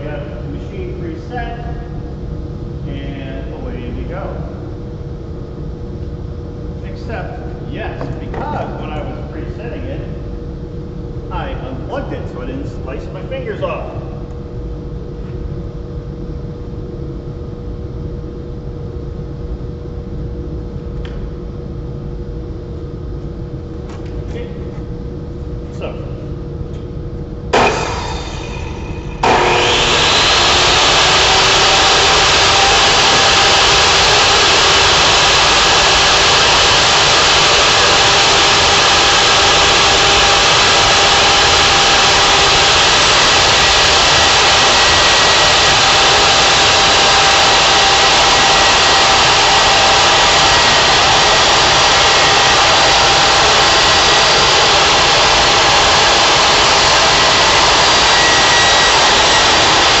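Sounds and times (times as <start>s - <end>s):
band saw whining: 27.5s - 60.0s.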